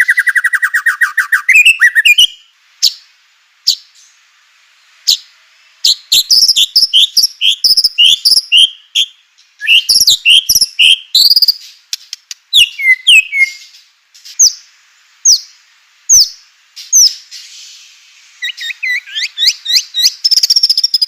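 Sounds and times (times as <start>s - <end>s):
rising whistled bird notes: 0.0s - 3.0s, 5.8s - 11.8s, 12.5s - 13.8s, 15.3s - 21.0s
sharp bird notes: 5.8s - 11.8s, 12.5s - 14.7s.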